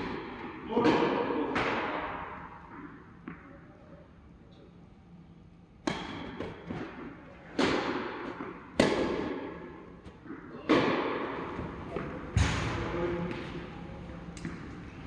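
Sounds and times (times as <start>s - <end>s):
tennis ball hit by racket: 5.8s - 12.8s.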